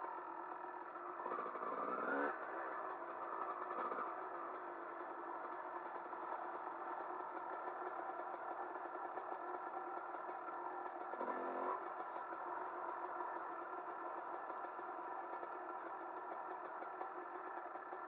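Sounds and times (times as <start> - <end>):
off-road motorcycle engine: 0.0 - 18.0.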